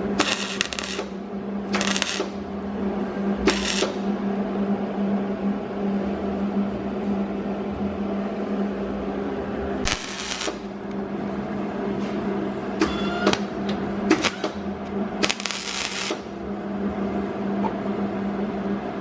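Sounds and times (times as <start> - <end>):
welder crackling: 0.0 - 2.4, 3.5 - 4.1, 9.8 - 10.8, 14.1 - 14.6, 15.2 - 16.4
steady low hum: 0.0 - 19.0.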